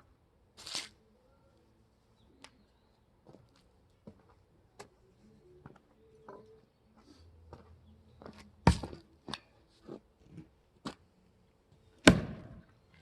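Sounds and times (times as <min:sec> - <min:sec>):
heavy blows splitting wood: 0:12.1 - 0:12.6.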